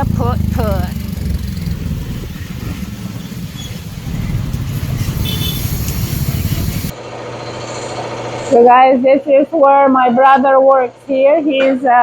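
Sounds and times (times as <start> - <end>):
motorcycles running: 0.0 - 7.0
street traffic rumble: 0.0 - 11.0.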